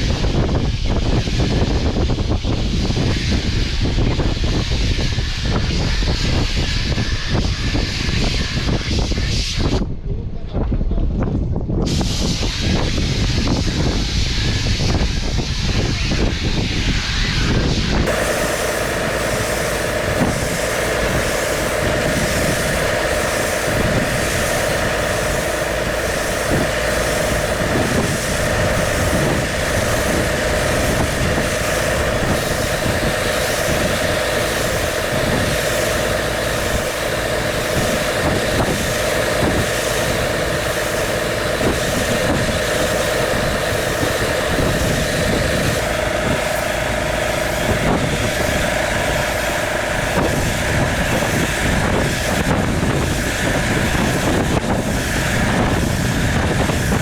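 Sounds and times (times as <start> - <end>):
engine idling: 17.9 - 57.0.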